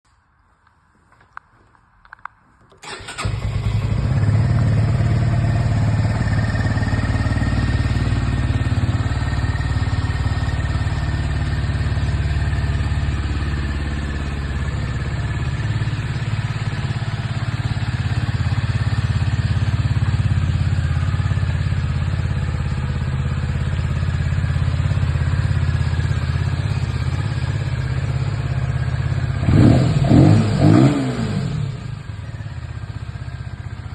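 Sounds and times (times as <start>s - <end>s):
motorcycle engine idling: 2.8s - 33.9s
engine revving: 29.4s - 32.0s.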